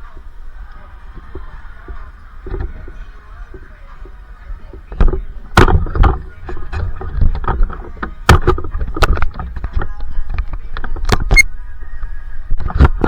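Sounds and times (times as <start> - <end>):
gym equipment thuds and knocks: 5.0 - 9.6.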